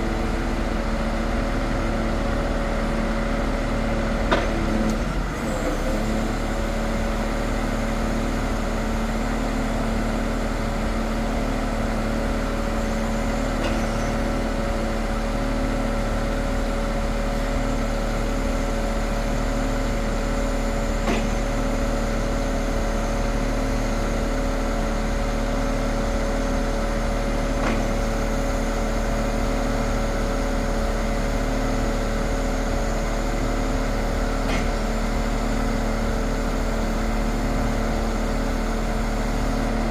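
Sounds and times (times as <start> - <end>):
truck engine running steadily: 0.0 - 39.9.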